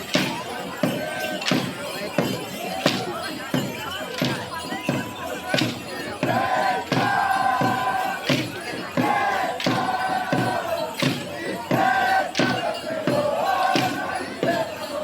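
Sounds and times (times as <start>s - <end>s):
steady drumbeat: 0.0s - 15.0s
group singing long held notes: 5.5s - 15.0s.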